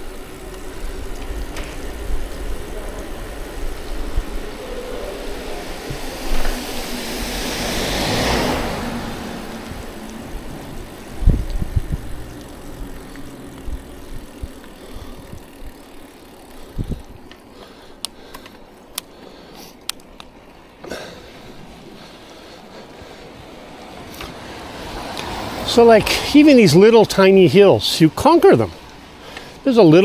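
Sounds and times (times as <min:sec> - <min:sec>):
vehicle passing: 0:00.0 - 0:18.3, 0:20.6 - 0:30.0
wind and tyre noise: 0:00.0 - 0:30.0
sharp ticks: 0:09.1 - 0:19.1.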